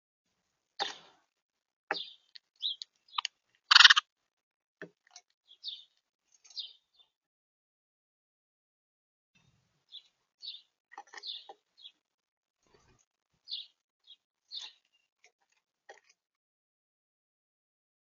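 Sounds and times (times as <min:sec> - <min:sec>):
small birds chirping: 0:01.9 - 0:04.1, 0:05.4 - 0:07.2, 0:09.4 - 0:12.0, 0:12.6 - 0:15.3.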